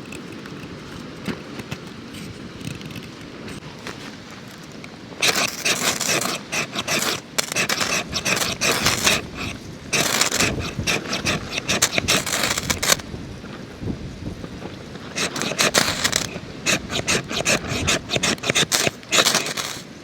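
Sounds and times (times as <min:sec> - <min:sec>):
rough scraping and rubbing: 0:05.2 - 0:13.0, 0:15.0 - 0:20.0.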